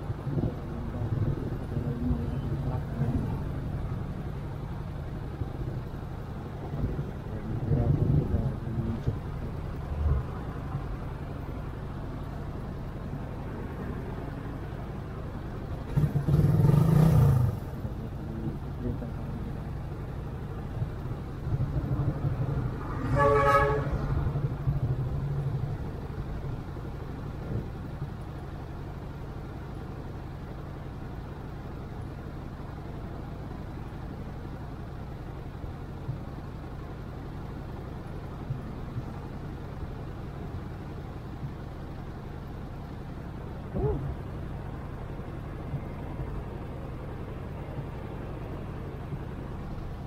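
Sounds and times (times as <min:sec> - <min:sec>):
vehicle horn honking: 0:23.0 - 0:24.0.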